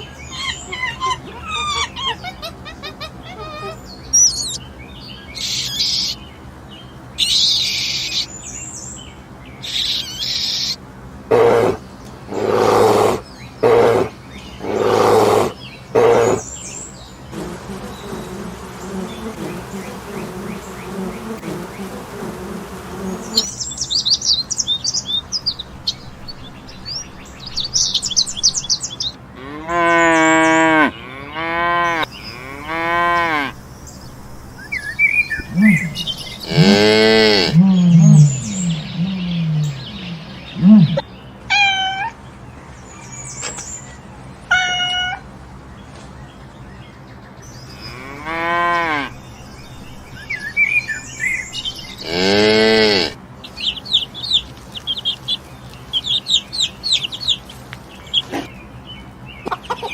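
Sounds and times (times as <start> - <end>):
birds chirping: 0.0 - 59.9
low buzzing hum: 17.0 - 29.4, 32.1 - 41.1
cattle mooing: 29.4 - 33.5, 35.5 - 41.0, 47.9 - 49.2, 52.0 - 53.2.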